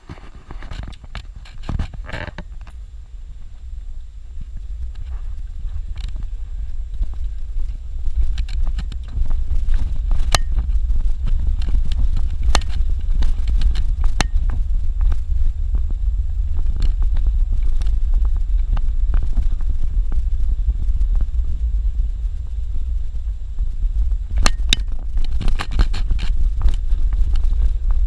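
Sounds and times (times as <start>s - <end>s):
vehicle cabin low rumble: 0.0s - 28.0s
sharp clicks and knocks: 7.6s - 15.2s.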